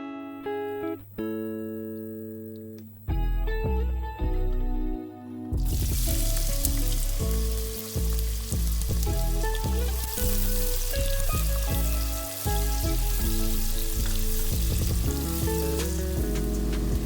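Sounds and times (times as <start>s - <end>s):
background music with plucked bass: 3.0s - 17.0s
food sizzling in hot oil: 5.6s - 17.0s.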